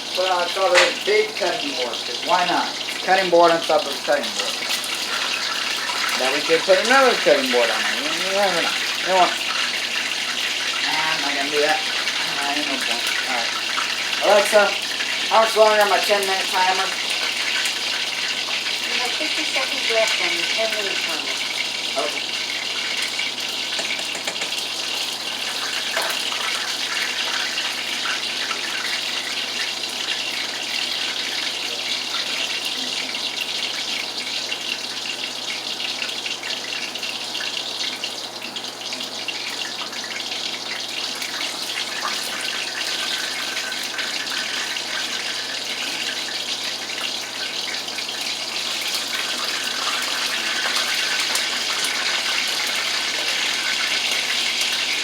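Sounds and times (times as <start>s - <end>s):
kitchen tap running: 0.0s - 55.0s.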